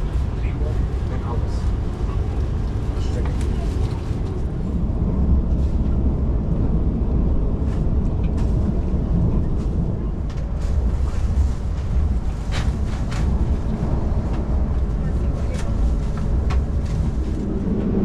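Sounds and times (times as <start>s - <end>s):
train running gear rumble: 0.0s - 18.0s.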